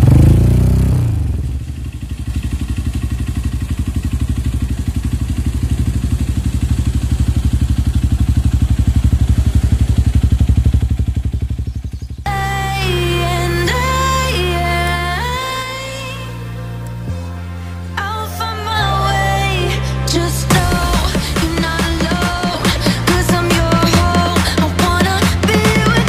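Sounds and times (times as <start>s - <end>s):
motorcycle engine idling: 0.0s - 14.5s, 20.5s - 26.0s.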